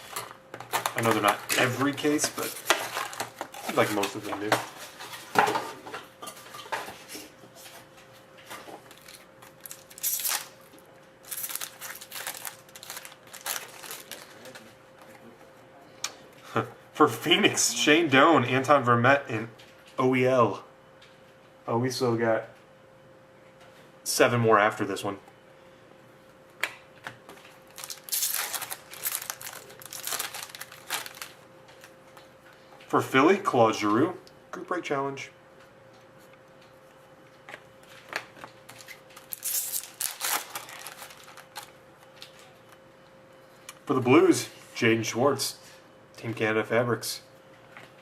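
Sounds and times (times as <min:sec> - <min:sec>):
packaging crinkling and tearing: 0:00.0 - 0:04.2, 0:08.9 - 0:14.7, 0:27.6 - 0:31.4, 0:38.3 - 0:42.5.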